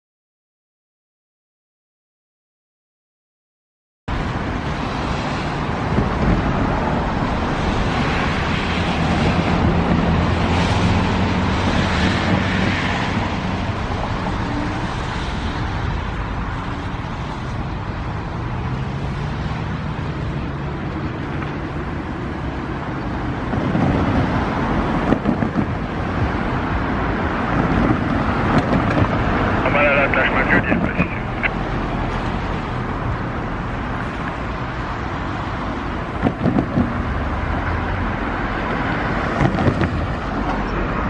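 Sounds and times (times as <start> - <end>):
motor vehicle passing: 4.7 - 17.4
wind on microphone: 22.6 - 29.6, 35.8 - 41.0.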